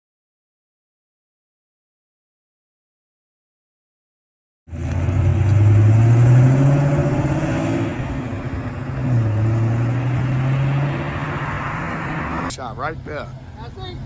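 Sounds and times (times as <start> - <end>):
car engine revving: 4.7 - 14.0.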